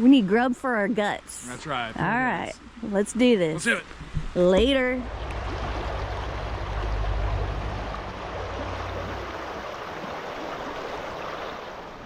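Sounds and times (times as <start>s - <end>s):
utility vehicle engine rumble: 4.4s - 10.2s
steady rushing noise: 4.8s - 11.2s.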